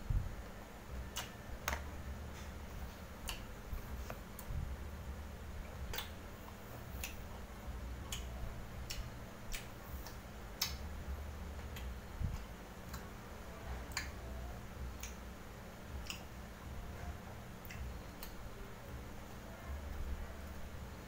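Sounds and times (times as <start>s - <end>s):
faint low hum: 0.0s - 21.0s
wet mouth clicks and smacks: 1.1s - 1.8s, 8.0s - 10.8s, 16.0s - 16.3s.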